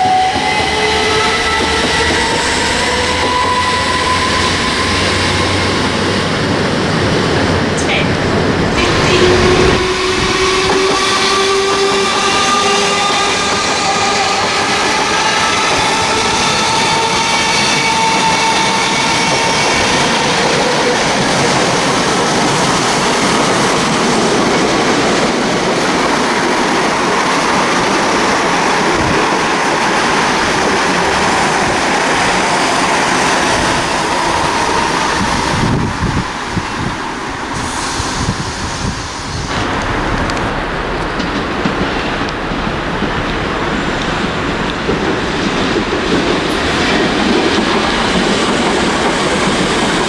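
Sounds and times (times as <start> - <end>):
train wheels rushing on rail: 0.0 - 50.0
train whine: 0.0 - 50.0.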